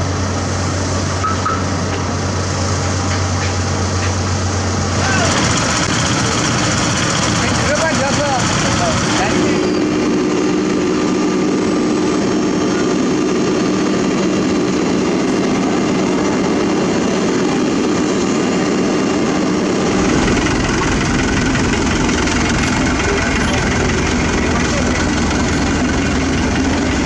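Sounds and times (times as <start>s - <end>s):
diesel construction machinery running: 0.0s - 27.0s
deep low rumble: 19.6s - 26.8s.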